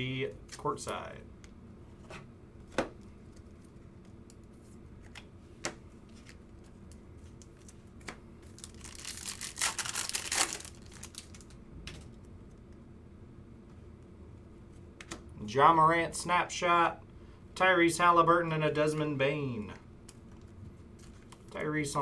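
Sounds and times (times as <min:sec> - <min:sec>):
foil wrapper tearing and crinkling: 0:08.5 - 0:11.5.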